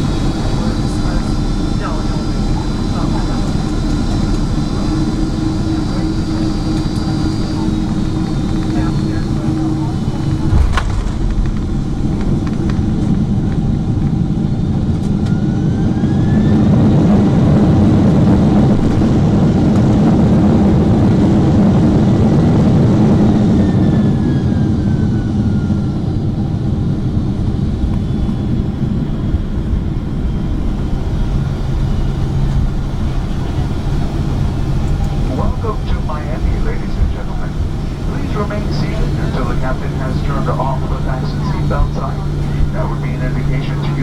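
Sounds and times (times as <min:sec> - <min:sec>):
faint whine: 0:00.0 - 0:16.3, 0:27.4 - 0:44.0
aircraft cabin engine roar: 0:00.0 - 0:44.0.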